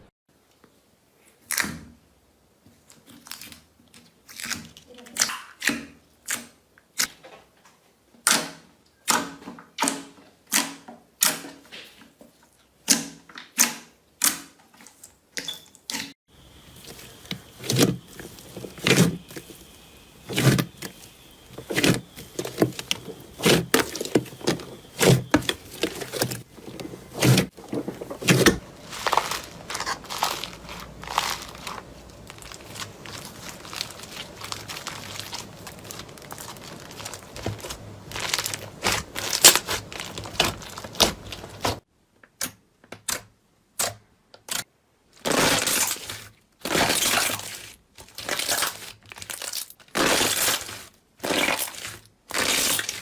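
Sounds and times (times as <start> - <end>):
slime crackling and popping: 27.2 - 41.8.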